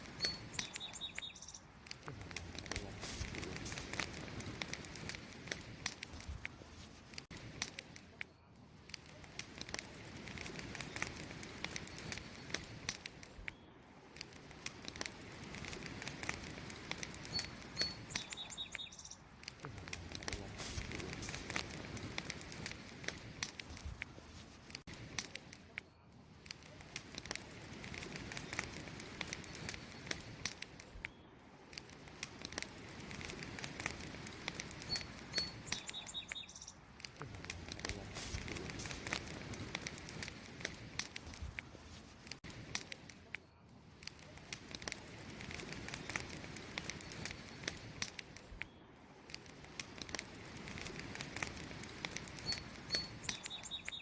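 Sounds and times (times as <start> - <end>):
campfire crackling and popping: 0.0 - 54.0
faint high chirps: 0.1 - 1.7, 17.2 - 19.3, 34.8 - 36.8.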